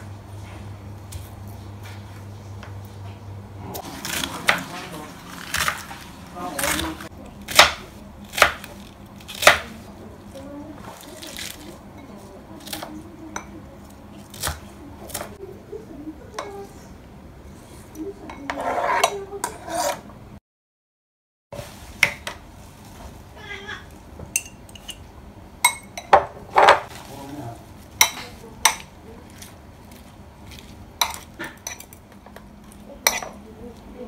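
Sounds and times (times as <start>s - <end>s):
cut cabbage rustling scrape: 3.8s - 7.1s, 18.5s - 20.0s
knife chopping on cutting board: 6.6s - 9.7s.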